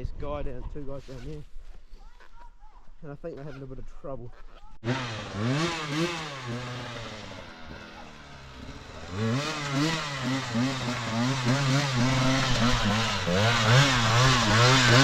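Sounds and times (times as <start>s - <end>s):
dirt bike engine revving: 4.8s - 15.0s.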